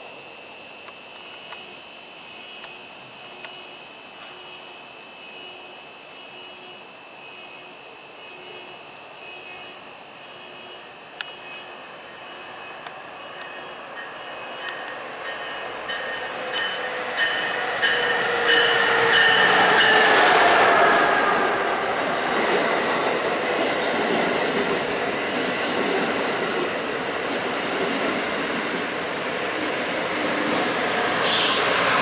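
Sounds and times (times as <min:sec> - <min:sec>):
train whine with regular clicks: 0:00.0 - 0:32.0
high-speed train passing: 0:08.6 - 0:32.0
rush of passenger cars: 0:28.2 - 0:32.0.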